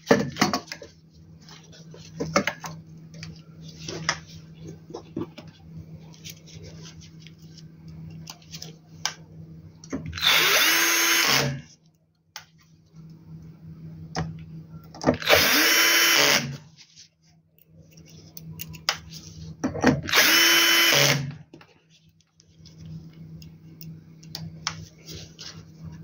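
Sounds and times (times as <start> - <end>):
steady low hum: 0.0 - 26.0
power screwdriver driving screws: 10.2 - 11.6, 15.2 - 16.6, 20.1 - 21.3.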